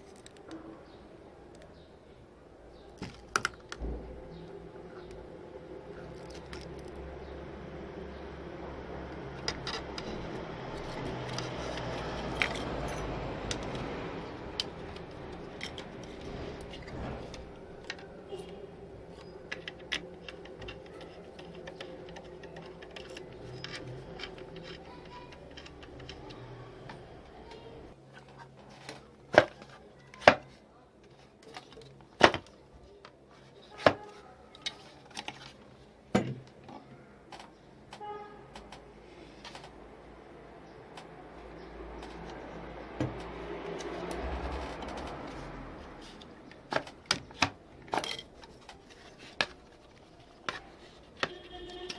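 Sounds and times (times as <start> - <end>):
tools clicking and rattling: 9.4 - 27.1, 43.1 - 51.9.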